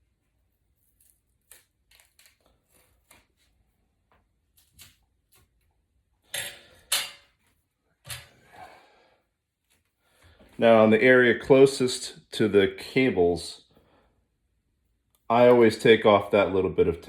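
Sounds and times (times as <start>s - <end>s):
tools and parts clicking: 6.3s - 7.3s.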